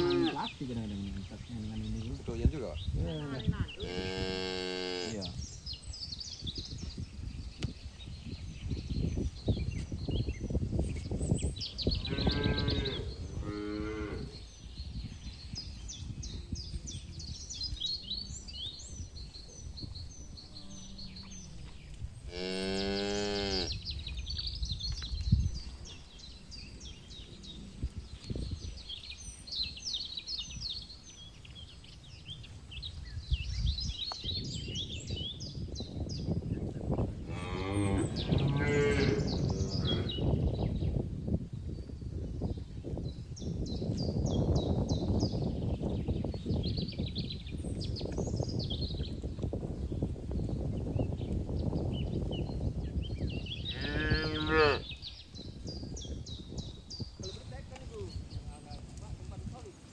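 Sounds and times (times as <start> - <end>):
cattle mooing: 0.0 - 0.5, 37.3 - 40.1
birds chirping: 0.0 - 59.9.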